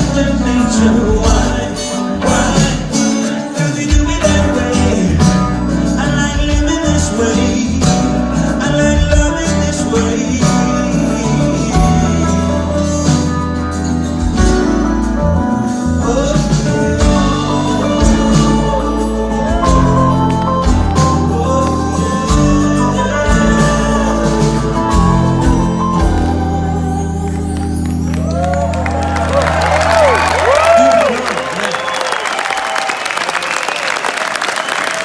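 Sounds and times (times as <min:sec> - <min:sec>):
bass guitar: 0:00.0 - 0:31.4
electric guitar: 0:00.0 - 0:31.9
drum beat: 0:16.4 - 0:18.8.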